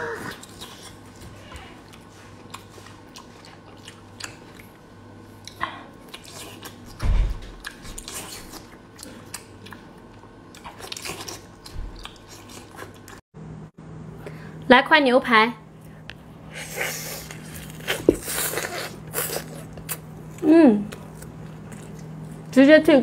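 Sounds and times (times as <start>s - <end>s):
wet chewing and biting: 0.3s - 13.2s, 17.1s - 22.5s.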